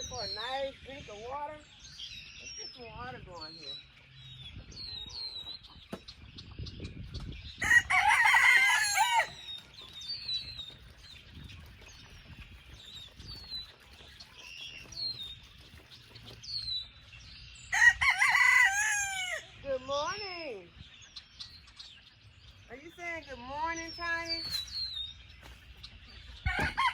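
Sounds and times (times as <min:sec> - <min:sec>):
faint high chicken chirps: 0:04.4 - 0:19.8, 0:24.4 - 0:26.9
rooster crowing: 0:07.6 - 0:09.4, 0:17.7 - 0:19.5, 0:26.4 - 0:26.9.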